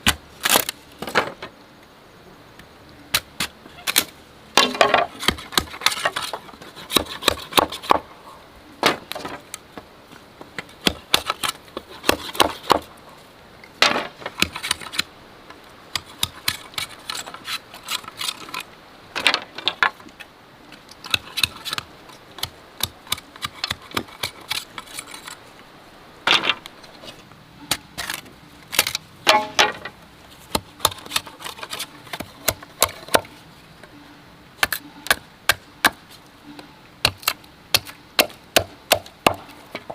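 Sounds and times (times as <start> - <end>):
bamboo knocking and clacking: 4.0 - 8.0, 28.8 - 33.3.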